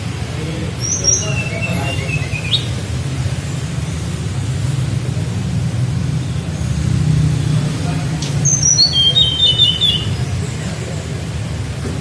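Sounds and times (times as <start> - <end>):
songbird whistling: 0.8 - 2.8, 8.3 - 10.3.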